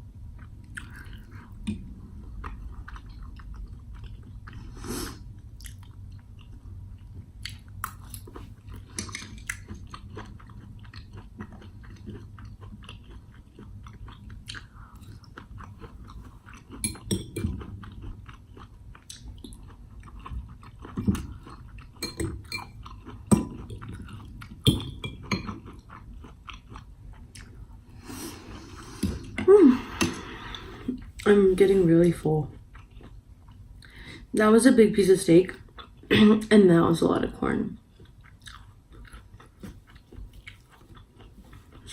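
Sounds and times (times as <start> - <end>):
close chewing and biting: 5.5 - 27.6, 37.9 - 41.9.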